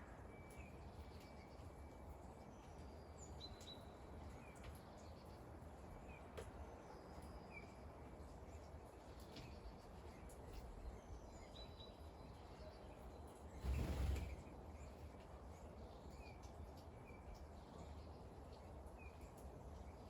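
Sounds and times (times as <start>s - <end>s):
rain pattering: 15.2s - 20.0s.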